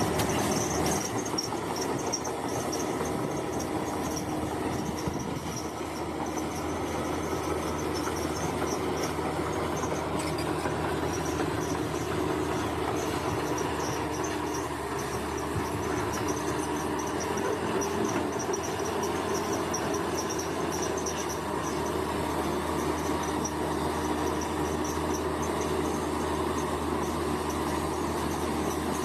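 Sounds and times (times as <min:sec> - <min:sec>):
bulldozer diesel engine running: 0:00.0 - 0:29.0
insects chirping: 0:10.2 - 0:22.0.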